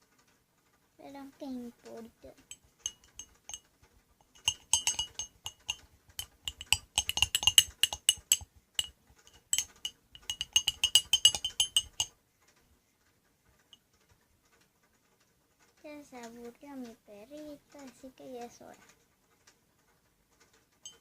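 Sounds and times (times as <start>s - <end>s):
spoon clinking in cup: 2.5s - 3.6s, 4.3s - 12.1s.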